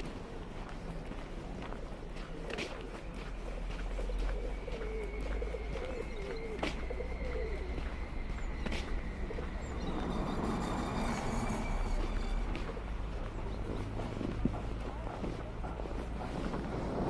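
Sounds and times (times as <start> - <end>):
bird cooing: 4.3 - 7.8.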